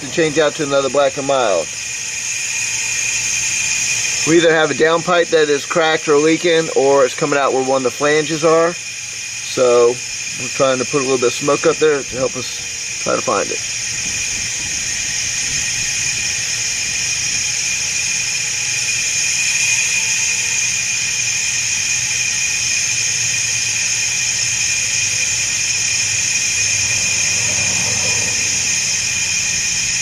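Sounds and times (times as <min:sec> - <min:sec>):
compressed air hissing: 0:09.2 - 0:30.0
low hum: 0:24.3 - 0:30.0.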